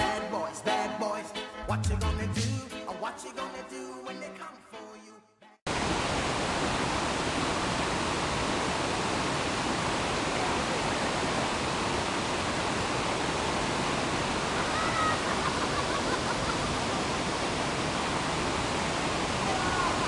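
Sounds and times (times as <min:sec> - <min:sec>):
waterfall rushing: 0:05.7 - 0:20.0.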